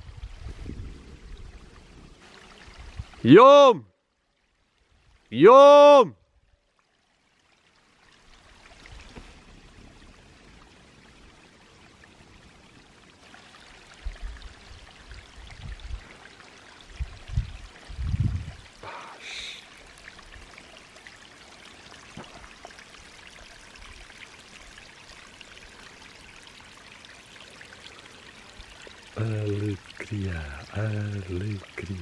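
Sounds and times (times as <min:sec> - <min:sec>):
wind rumble on microphone: 0:00.0 - 0:03.2, 0:14.0 - 0:16.1, 0:16.9 - 0:18.7
running water: 0:00.0 - 0:32.0.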